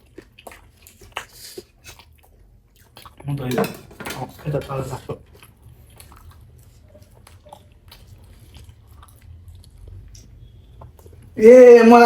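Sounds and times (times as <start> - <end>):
person chewing with mouth clicks: 0.0 - 3.3, 5.1 - 11.4.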